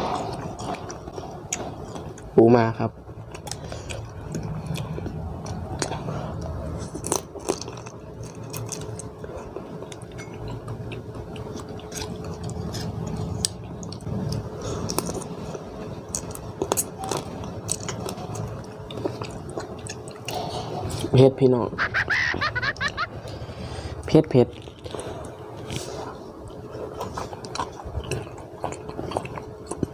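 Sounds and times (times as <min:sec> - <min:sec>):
faint steady hum: 0:00.0 - 0:29.9
person crunching crab shell: 0:06.8 - 0:09.1.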